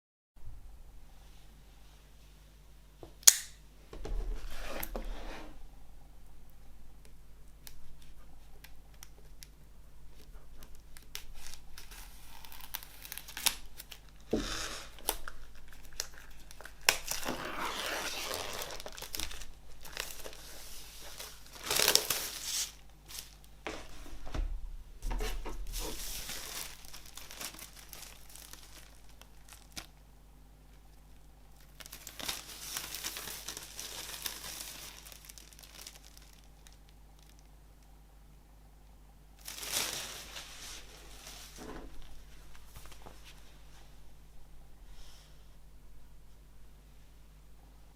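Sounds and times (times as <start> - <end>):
wrapping crinkling and tearing: 10.2 - 23.6, 25.7 - 30.0, 31.6 - 37.6, 39.4 - 43.4.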